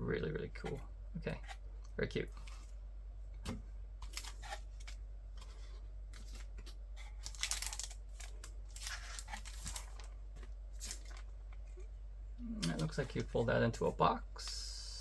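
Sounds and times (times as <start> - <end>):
paper and packaging rustling: 4.0 - 11.8.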